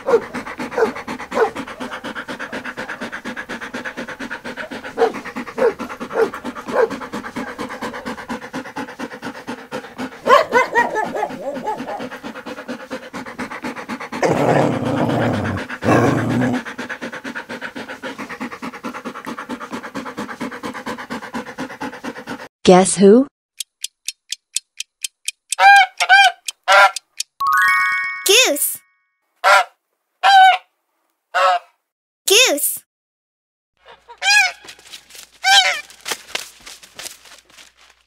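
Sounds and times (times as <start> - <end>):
dog panting: 0.0 - 22.5
short high dog calls: 25.6 - 27.0.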